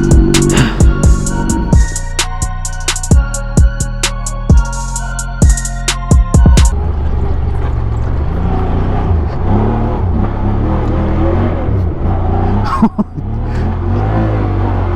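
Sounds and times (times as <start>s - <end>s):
motorcycle engine revving: 0.0s - 2.1s, 6.6s - 14.9s.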